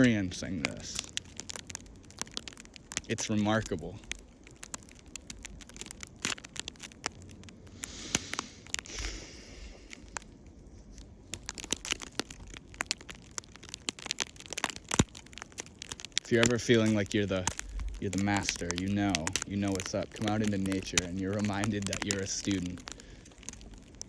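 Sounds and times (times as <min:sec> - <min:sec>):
soft rush of noise: 0:00.0 - 0:12.8
sharp crackles and clicks: 0:00.0 - 0:24.0.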